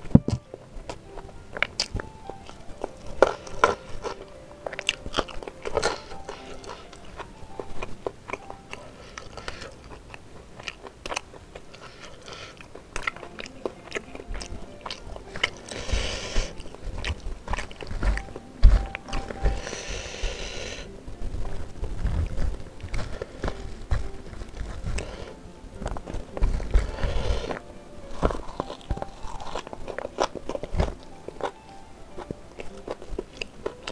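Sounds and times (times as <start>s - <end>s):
food crunching: 0.0s - 33.9s
person chewing food: 0.0s - 33.9s
rustling: 0.0s - 33.9s.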